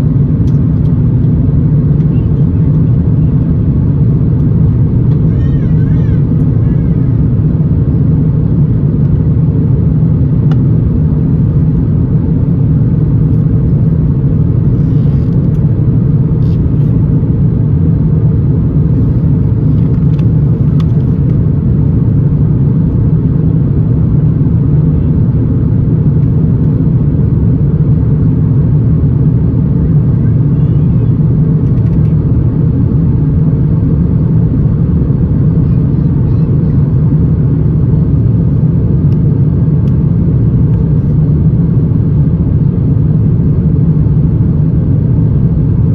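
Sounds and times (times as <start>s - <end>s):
aircraft cabin engine drone: 0.0s - 45.9s
faint small clicks: 0.4s - 1.3s, 19.8s - 21.1s, 31.6s - 32.2s.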